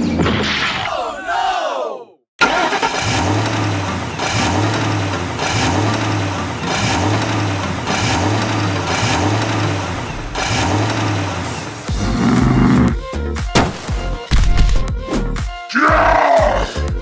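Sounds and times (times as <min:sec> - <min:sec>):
small tractor motor running: 0:02.4 - 0:12.0.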